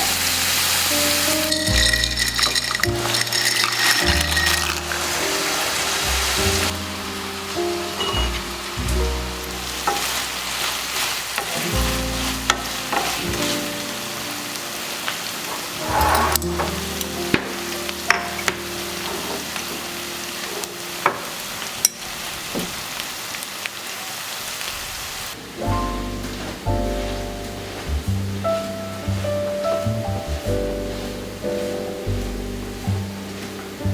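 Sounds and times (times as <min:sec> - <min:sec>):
soft background music: 0:00.0 - 0:22.4, 0:25.4 - 0:33.9
food sizzling in a frying pan: 0:00.0 - 0:26.3.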